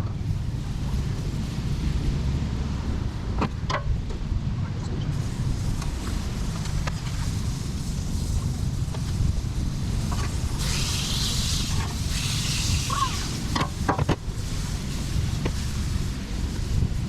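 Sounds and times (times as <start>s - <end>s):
wind buffeting microphone: 0.0s - 17.0s
hiss: 4.9s - 17.0s.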